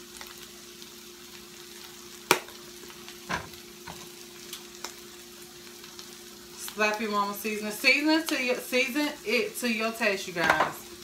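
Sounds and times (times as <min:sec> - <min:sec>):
food sizzling in frying pan: 0:00.0 - 0:11.0.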